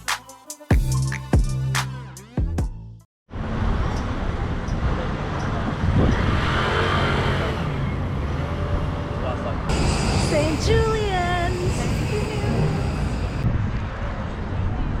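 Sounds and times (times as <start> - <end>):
background music: 0.0 - 3.0
passing cars rumble: 3.3 - 15.0.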